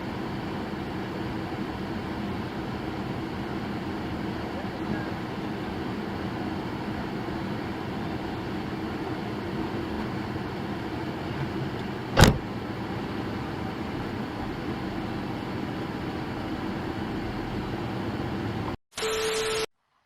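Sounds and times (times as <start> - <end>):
car road and engine noise: 0.0 - 18.8
sharp bang: 12.2 - 12.4.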